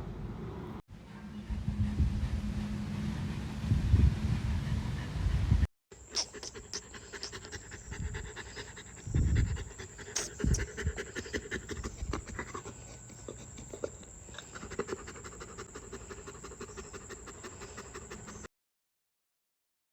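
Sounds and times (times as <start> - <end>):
dog panting rapidly: 6.0 - 18.5.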